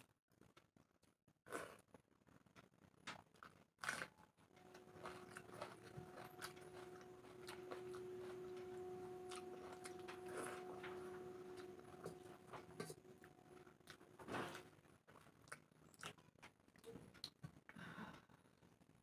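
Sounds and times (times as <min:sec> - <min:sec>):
person chewing: 0:03.1 - 0:17.4
faint steady hum: 0:04.6 - 0:15.0.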